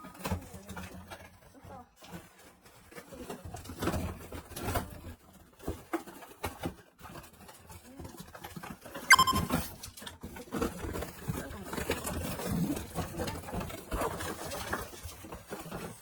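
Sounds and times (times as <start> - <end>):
dog squeak: 9.1 - 9.5.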